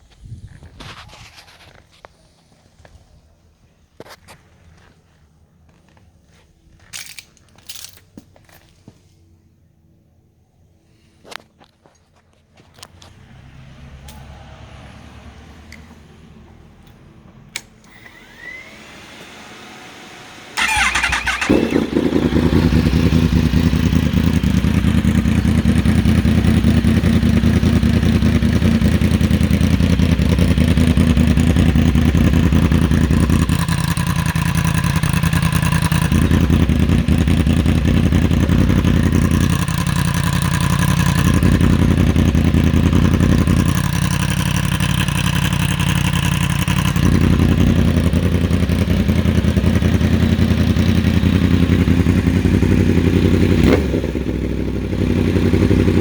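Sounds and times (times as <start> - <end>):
motorcycle engine starting and idling: 12.7 - 56.0
click: 16.8 - 18.5.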